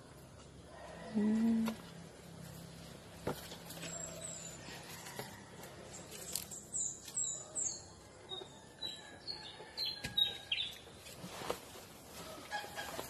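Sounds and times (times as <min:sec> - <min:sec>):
small birds chirping: 0:05.8 - 0:10.9.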